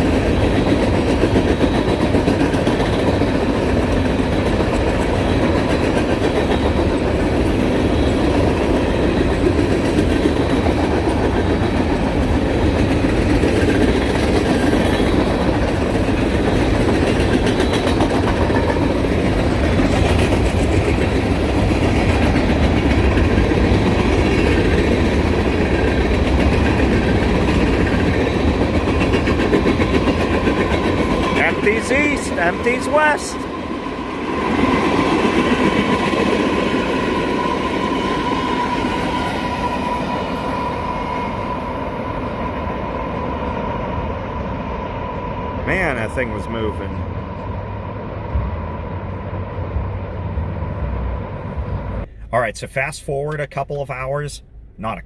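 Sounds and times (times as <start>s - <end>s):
wheels clacking over rail joints: 0.0s - 41.1s
freight train rumbling past: 0.0s - 52.6s.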